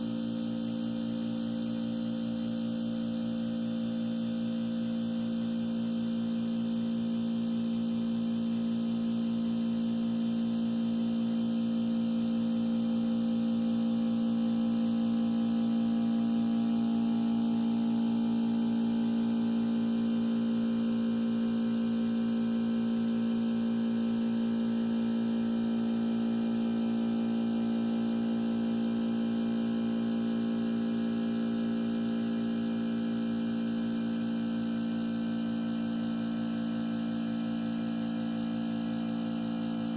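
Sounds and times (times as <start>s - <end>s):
compressor humming: 26.2s - 32.5s.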